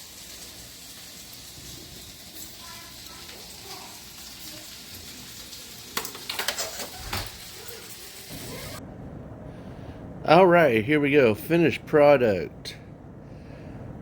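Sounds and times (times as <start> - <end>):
food sizzling: 0.0 - 8.8
kitchen clattering: 0.0 - 8.8.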